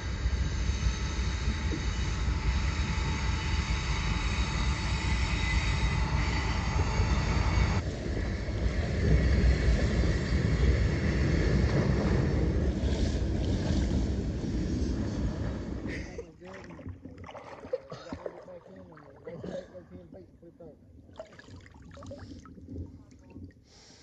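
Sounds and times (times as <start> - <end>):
wheels squealing on rails: 0.0 - 7.8
freight train rumbling on bridge: 0.0 - 15.9
wind on microphone: 0.0 - 16.0
water: 0.3 - 4.2, 7.8 - 24.0.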